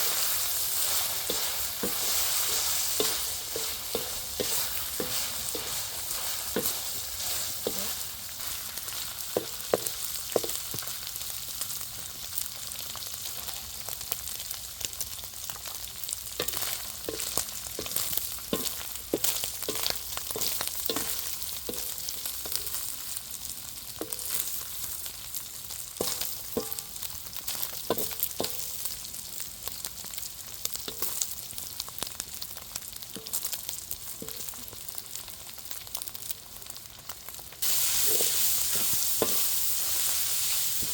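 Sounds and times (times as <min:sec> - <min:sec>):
spoon scraping a pan: 0:00.0 - 0:10.6, 0:16.4 - 0:22.8, 0:37.6 - 0:40.9
food sizzling in oil: 0:00.0 - 0:40.9.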